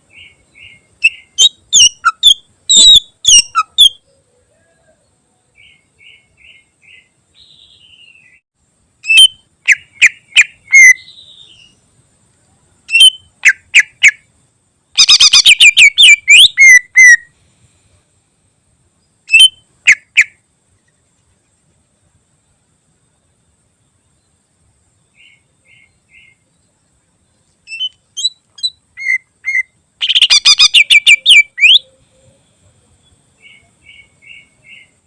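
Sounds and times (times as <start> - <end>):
bird singing whistled notes: 0.0 - 8.4, 9.0 - 11.8, 12.9 - 14.0, 15.0 - 17.3, 19.2 - 20.3, 27.4 - 35.0.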